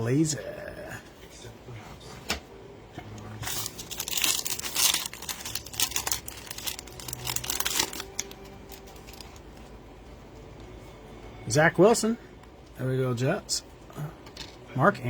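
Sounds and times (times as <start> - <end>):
plastic wrapper tearing and crinkling: 3.4 - 9.4.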